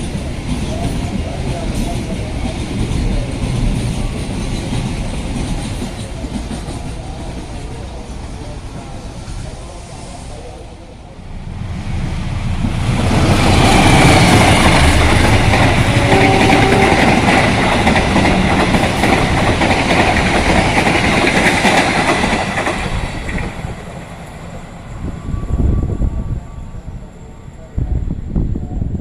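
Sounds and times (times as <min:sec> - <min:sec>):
train wheels clattering over rails: 0:00.0 - 0:09.0, 0:12.4 - 0:24.3.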